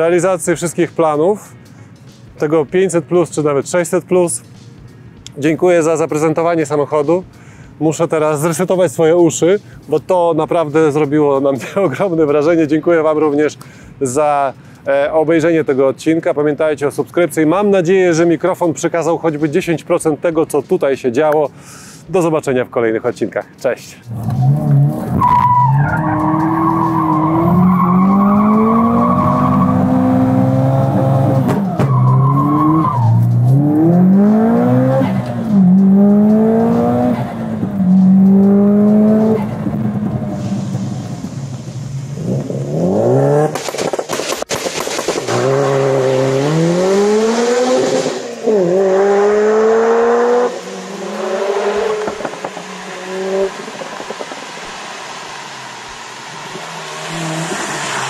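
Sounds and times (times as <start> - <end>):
tyre squeal: 24.1 - 30.4, 31.4 - 33.3
car engine revving hard: 24.1 - 31.7, 32.3 - 43.6, 45.0 - 58.0
sharp cracks: 43.5 - 45.5.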